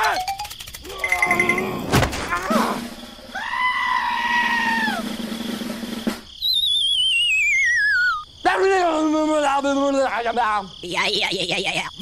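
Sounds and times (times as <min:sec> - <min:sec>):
wobbling descending whistle: 0:06.4 - 0:08.2.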